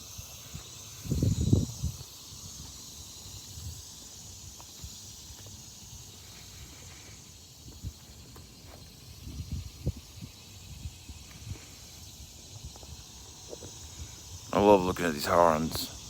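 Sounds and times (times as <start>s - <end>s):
insects hissing: 0.0s - 16.0s
wind buffeting microphone: 0.3s - 2.7s, 9.1s - 11.7s.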